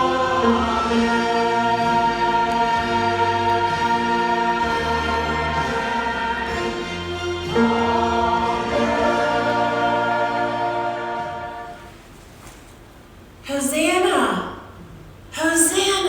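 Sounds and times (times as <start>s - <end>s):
church choir singing chords: 0.0s - 11.9s.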